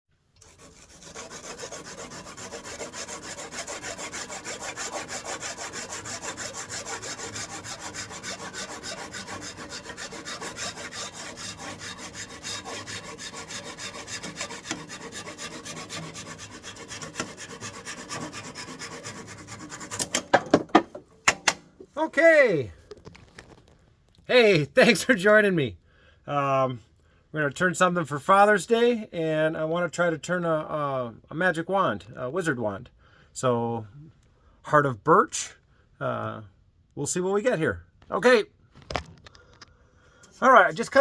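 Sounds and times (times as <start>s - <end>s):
tool rasping into wood: 0.4s - 20.3s.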